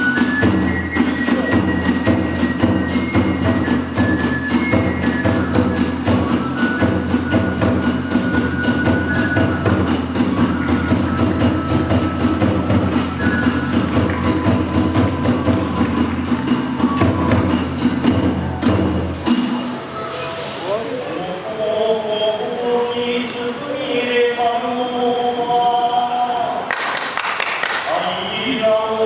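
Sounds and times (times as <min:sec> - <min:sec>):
hand cymbals: 0:00.0 - 0:20.9
drums beating: 0:00.0 - 0:21.0
bamboo flute melody: 0:00.0 - 0:26.6.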